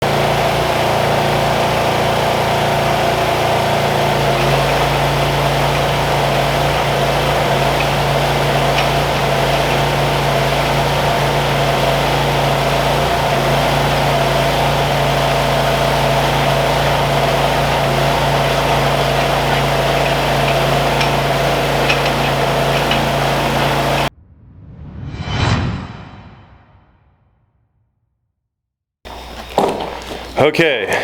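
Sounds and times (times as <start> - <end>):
engine idling: 0.0 - 24.1, 29.1 - 31.0.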